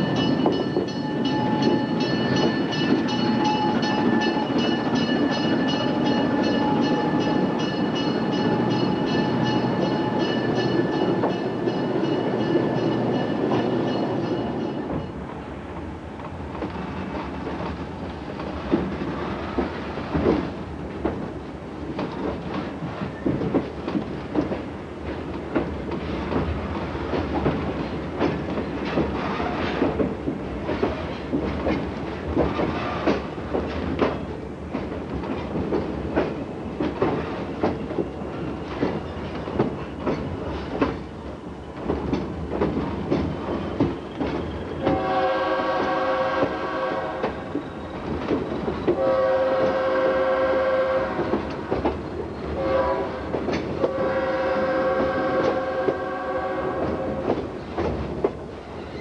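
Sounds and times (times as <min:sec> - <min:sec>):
train wheels clicking over rail joints: 0:00.0 - 0:15.2, 0:16.2 - 0:49.9, 0:51.0 - 0:54.2, 0:56.7 - 0:59.0
locomotive horn: 0:44.8 - 0:47.5, 0:49.0 - 0:51.4, 0:52.6 - 0:57.3.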